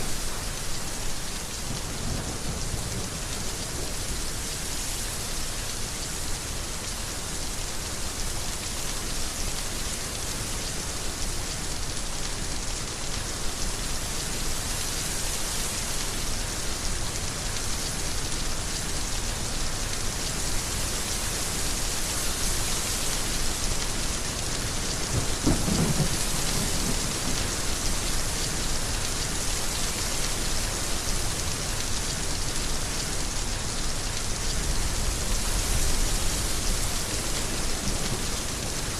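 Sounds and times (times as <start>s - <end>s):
heavy rain falling: 0.0s - 38.9s
thunder clap rumbling: 25.1s - 27.4s.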